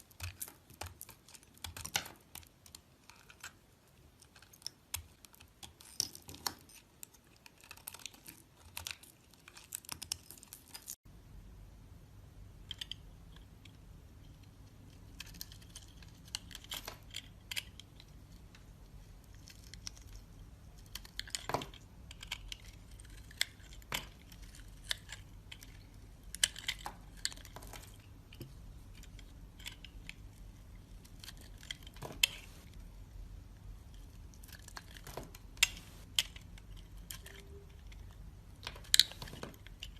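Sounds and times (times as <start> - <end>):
soap crunching and crackling: 0.0 - 11.0, 19.1 - 32.8
low steady hum: 0.0 - 39.9.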